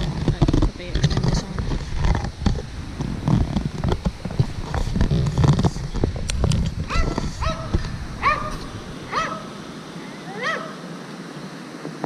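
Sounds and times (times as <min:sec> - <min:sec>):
low rumbling noise: 0:00.0 - 0:12.0
dog whining: 0:06.9 - 0:09.5, 0:10.3 - 0:10.8.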